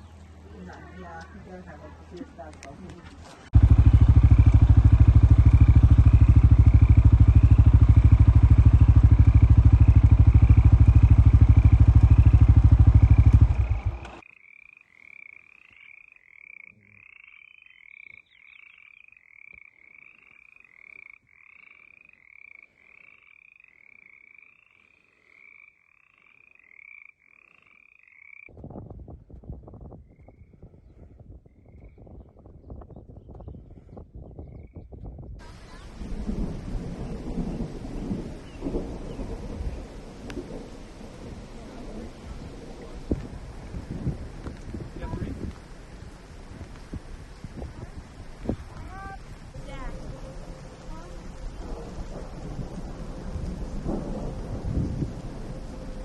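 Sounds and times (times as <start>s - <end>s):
loud pulsing low rumble: 3.6s - 14.1s, 35.4s - 56.0s.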